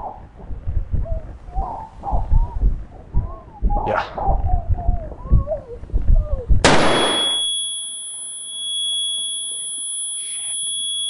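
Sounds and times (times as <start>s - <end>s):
low rumbling: 0.0s - 7.0s
high-pitched ringing tone: 6.7s - 11.0s
short wavering whines: 6.7s - 11.0s.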